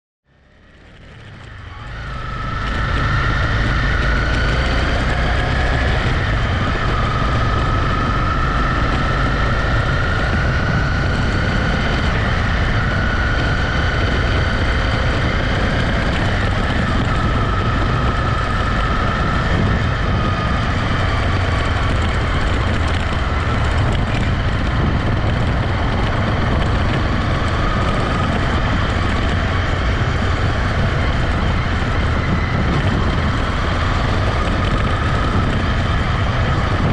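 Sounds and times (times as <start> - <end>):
motorcycle engine running: 0.3 - 36.9
wind rumble on microphone: 0.6 - 36.9.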